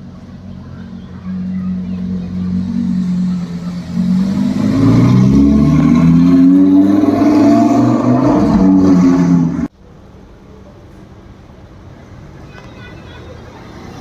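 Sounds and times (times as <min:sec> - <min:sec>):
car engine revving: 0:00.0 - 0:09.7.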